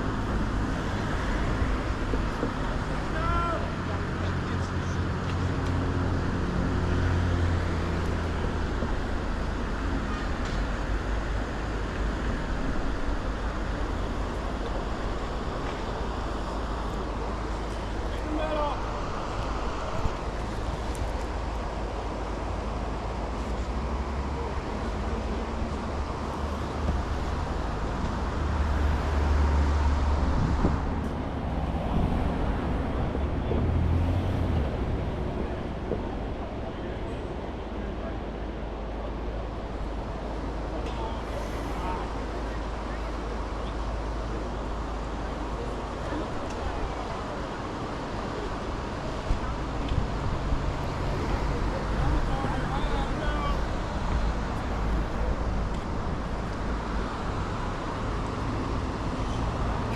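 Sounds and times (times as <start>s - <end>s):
rumble of water and wind: 0.0s - 59.9s.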